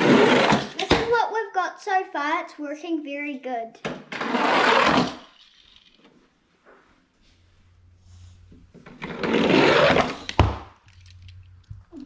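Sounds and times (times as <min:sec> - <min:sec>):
toy car rolling down cardboard track: 0:00.0 - 0:00.9, 0:04.1 - 0:06.1, 0:08.8 - 0:11.4.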